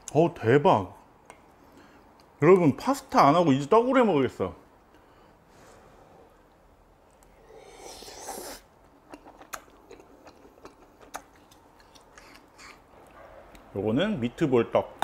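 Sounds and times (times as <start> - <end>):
person chewing quietly: 1.3 - 2.4, 6.5 - 13.7.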